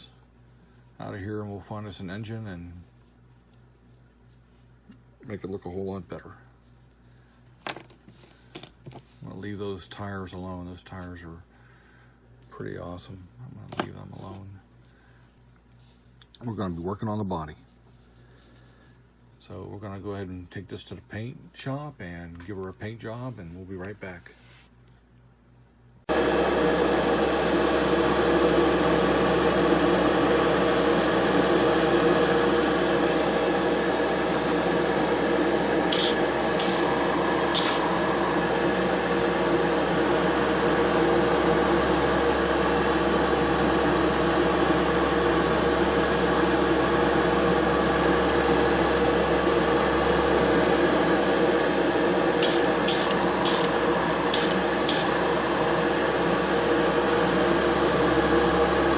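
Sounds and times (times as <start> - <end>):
small motor humming: 35.8 - 38.5, 52.4 - 55.2
paint spray hissing: 35.9 - 36.9, 37.5 - 37.8, 52.4 - 53.7, 54.3 - 55.1.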